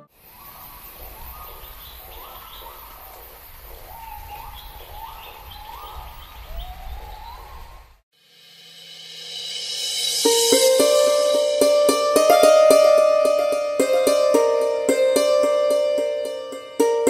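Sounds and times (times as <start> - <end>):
birds calling: 0.0 - 8.0.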